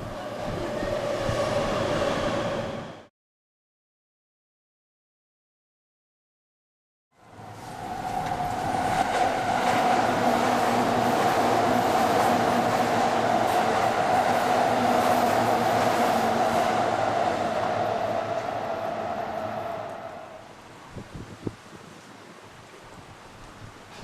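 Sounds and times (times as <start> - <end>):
electric train passing: 0.0 - 3.1, 7.2 - 20.6.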